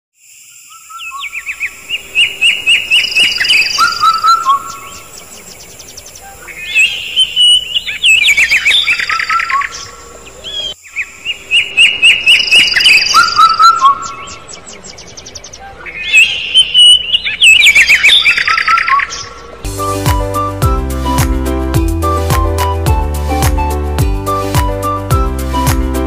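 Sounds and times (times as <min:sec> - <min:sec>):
birds chirping: 0:00.5 - 0:21.1.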